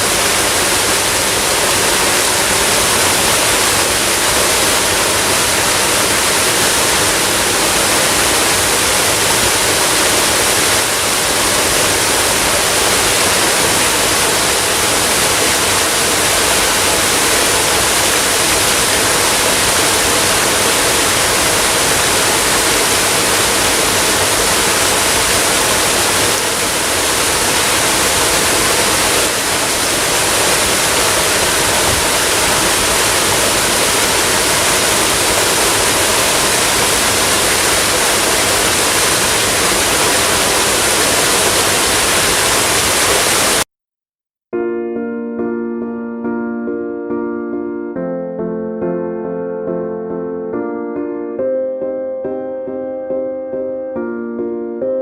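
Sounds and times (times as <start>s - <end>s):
waterfall rushing: 0.0s - 43.7s.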